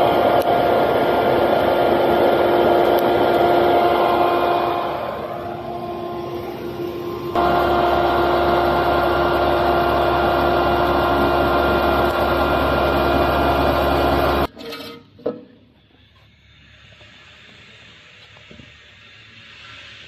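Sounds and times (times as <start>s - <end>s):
grinder motor whine: 0.0s - 14.5s.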